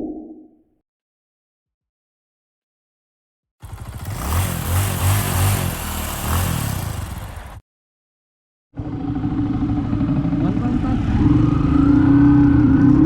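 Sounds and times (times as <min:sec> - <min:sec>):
motorcycle engine revving: 0:03.6 - 0:07.6, 0:08.8 - 0:13.0
steady engine running: 0:03.6 - 0:07.6, 0:08.8 - 0:10.9.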